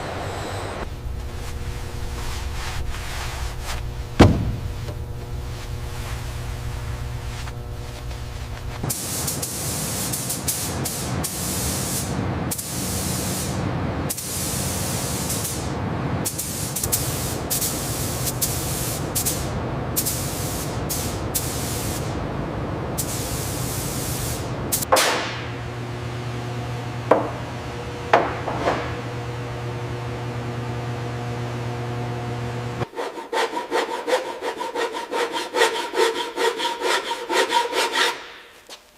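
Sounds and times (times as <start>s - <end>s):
paint spray gun hissing: 7.1s - 15.6s, 16.3s - 22.1s.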